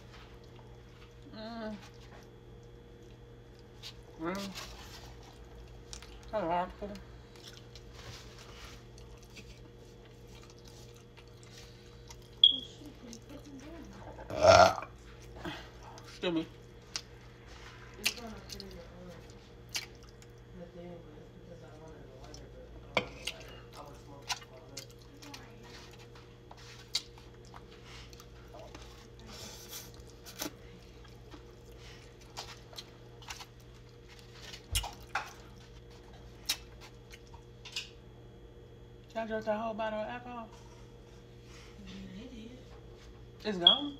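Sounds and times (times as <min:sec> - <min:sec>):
quiet chewing: 0:00.0 - 0:20.5, 0:21.7 - 0:37.9
faint steady hum: 0:00.0 - 0:43.9
person chewing: 0:07.3 - 0:12.5, 0:19.3 - 0:20.4, 0:25.9 - 0:37.5.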